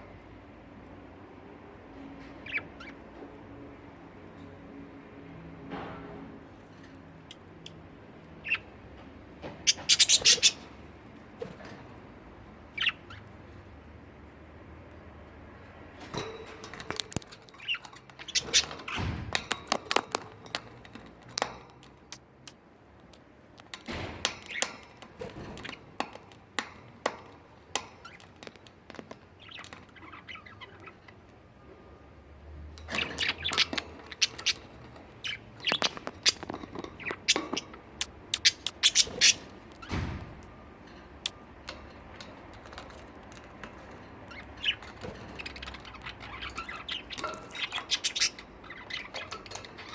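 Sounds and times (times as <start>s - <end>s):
budgerigars chirping and squawking: 2.2s - 3.3s, 8.4s - 8.8s, 9.4s - 11.0s, 12.5s - 13.7s, 16.2s - 20.1s, 27.2s - 31.4s, 32.9s - 40.1s, 42.1s - 49.9s.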